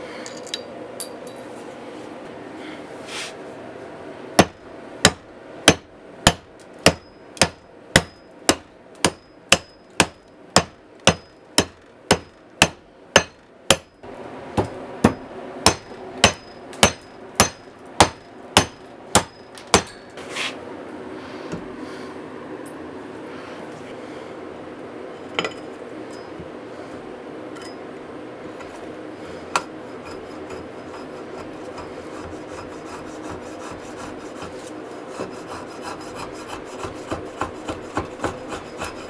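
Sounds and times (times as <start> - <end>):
hammer blows with metallic ring: 4.4 - 20.2.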